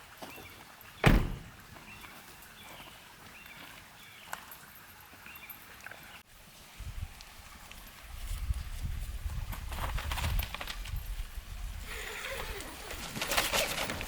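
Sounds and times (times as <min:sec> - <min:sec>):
sharp thump: 0:01.0 - 0:01.5.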